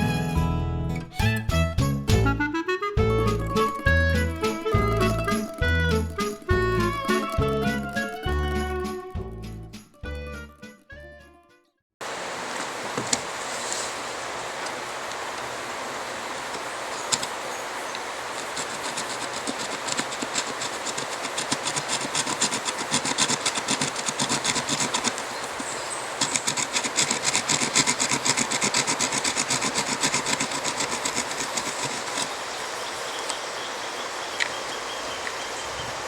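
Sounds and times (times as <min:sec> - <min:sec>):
hand saw cutting wood: 0:18.3 - 0:32.5.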